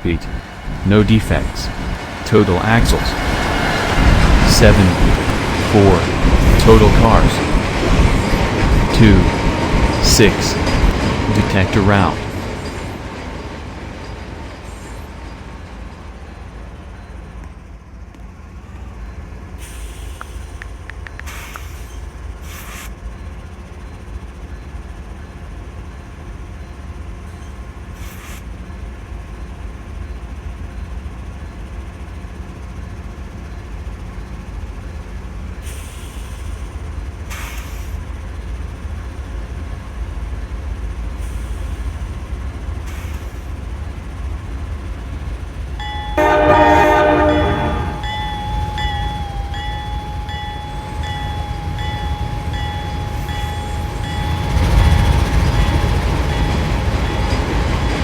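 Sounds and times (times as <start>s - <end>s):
vehicle rumbling: 0.0s - 13.0s.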